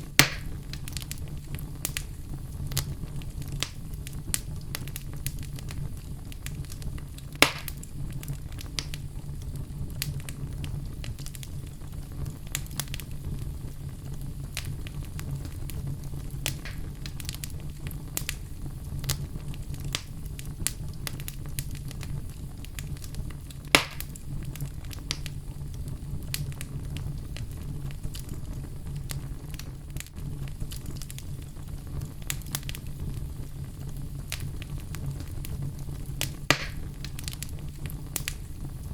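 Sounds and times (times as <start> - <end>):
fire crackling: 0.0 - 38.9
loud pops of burning logs: 0.0 - 38.9
low rumble of flame: 0.0 - 38.9.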